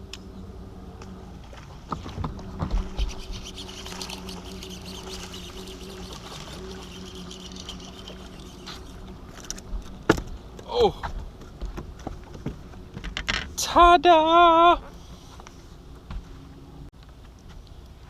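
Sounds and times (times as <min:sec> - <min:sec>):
steady low hum: 0:00.0 - 0:16.9
fishing reel hissing and crackling: 0:02.9 - 0:09.9.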